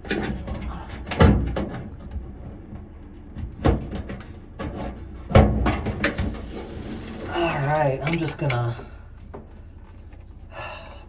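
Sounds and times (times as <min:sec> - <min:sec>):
knocks and clunks of parts: 0:00.0 - 0:06.5, 0:08.0 - 0:10.3.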